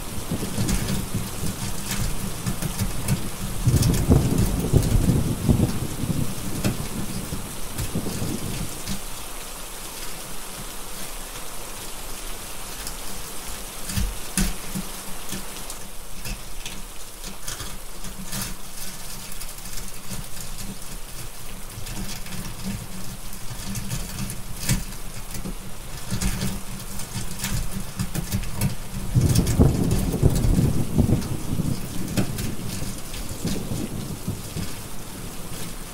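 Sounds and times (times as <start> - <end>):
low thunder rumble: 0.0 - 8.8, 29.0 - 35.9
wood fire crackling: 0.0 - 10.6, 12.6 - 35.9
steady rain: 0.0 - 35.9.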